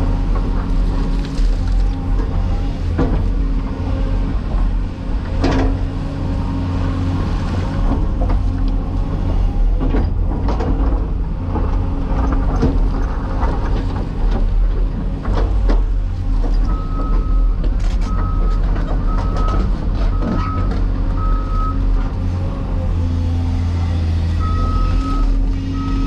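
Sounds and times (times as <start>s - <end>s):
excavator diesel engine drone: 0.0s - 26.0s.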